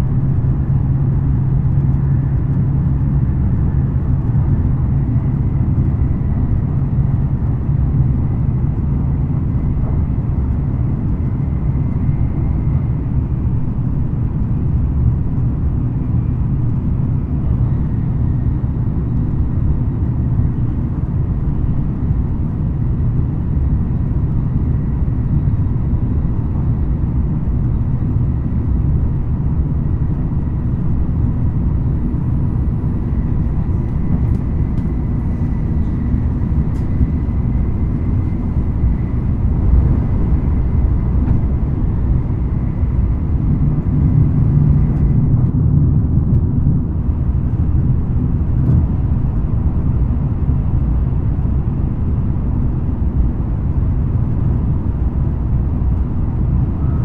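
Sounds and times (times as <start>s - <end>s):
train low rumble: 0.0s - 57.0s.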